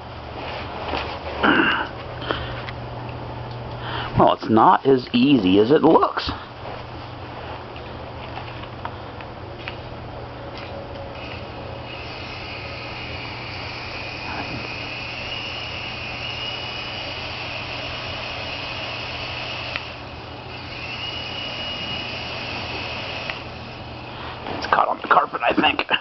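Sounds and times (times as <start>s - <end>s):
toy helicopter rotor whine: 11.1s - 24.2s
click: 19.7s - 19.9s.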